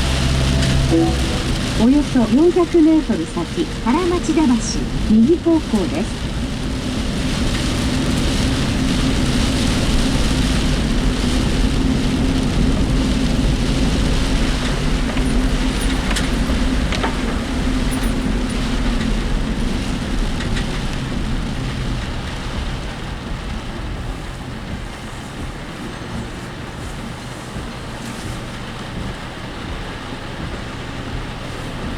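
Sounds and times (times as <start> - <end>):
vehicle engine and tyres drone: 0.0 - 31.9
ticks and rattles: 12.7 - 31.9.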